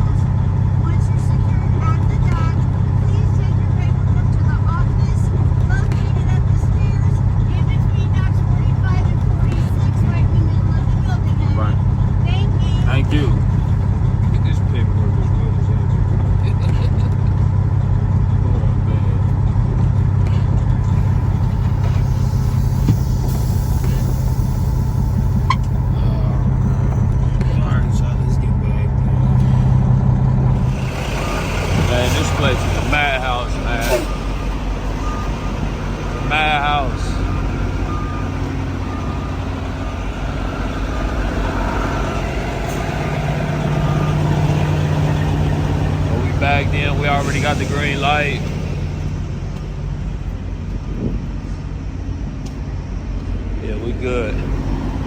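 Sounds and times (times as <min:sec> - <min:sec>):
truck diesel engine droning: 0:00.0 - 0:55.0.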